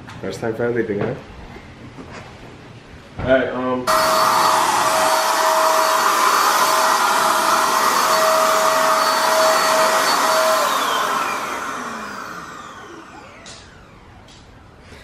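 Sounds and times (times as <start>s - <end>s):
paint sprayer blower whining: 3.9s - 14.7s.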